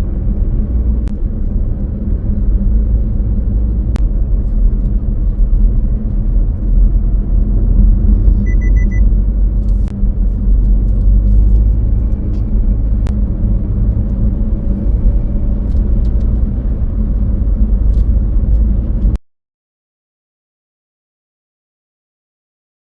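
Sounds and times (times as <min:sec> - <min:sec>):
car driving rumble: 0:00.0 - 0:19.2
short high beeps: 0:08.3 - 0:09.1.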